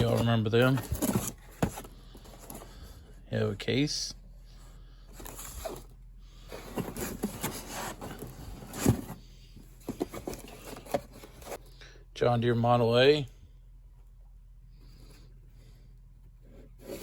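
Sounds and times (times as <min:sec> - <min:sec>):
cardboard scraping and rustling: 0:00.0 - 0:03.0, 0:05.1 - 0:11.6, 0:16.4 - 0:17.0.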